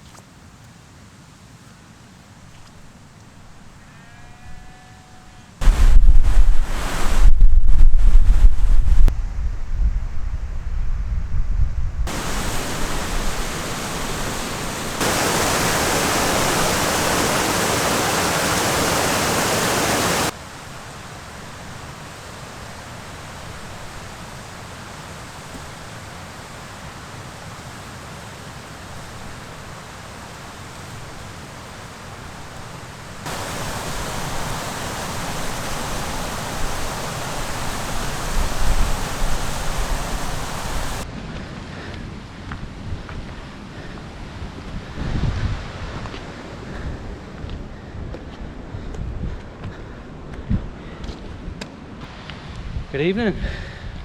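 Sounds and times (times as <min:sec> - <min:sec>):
wind buffeting microphone: 0:05.6 - 0:20.3, 0:30.3 - 0:41.0
wind and rain hissing: 0:05.6 - 0:41.1, 0:48.5 - 0:54.0.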